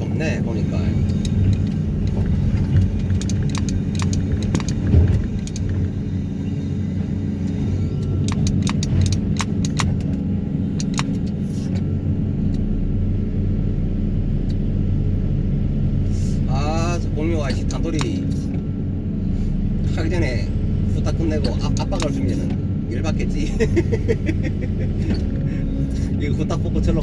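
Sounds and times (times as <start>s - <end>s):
deep steady hum: 0.0s - 27.0s
excavator diesel engine running: 0.0s - 27.0s
sharp clicks and rattles: 0.2s - 11.9s, 17.3s - 18.6s, 21.2s - 22.6s.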